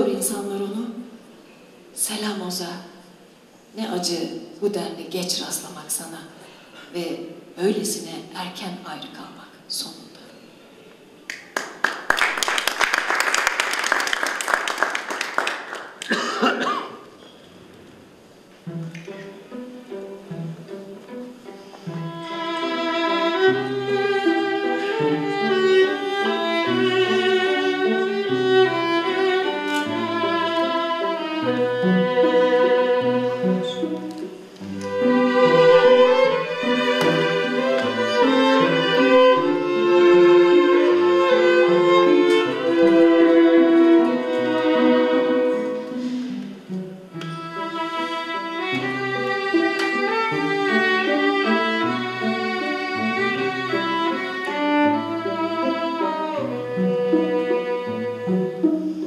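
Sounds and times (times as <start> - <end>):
violin and cello playing: 18.6 - 59.0.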